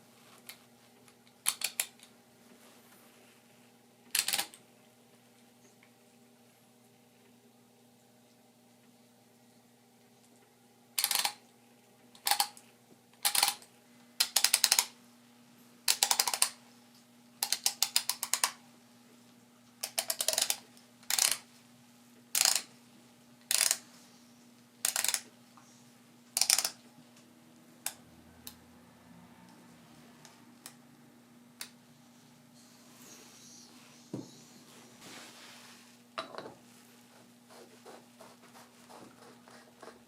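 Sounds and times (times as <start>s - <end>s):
hand grinder ratcheting clicks: 19.8s - 21.4s, 22.4s - 22.6s, 23.5s - 23.8s, 24.8s - 25.2s.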